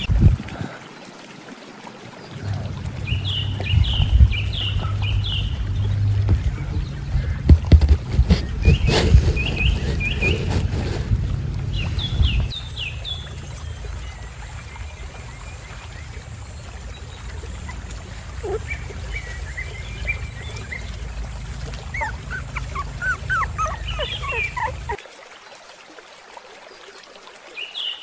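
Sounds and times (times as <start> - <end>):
steady low rumble: 2.3 - 25.0
dog whimpering: 17.0 - 25.0.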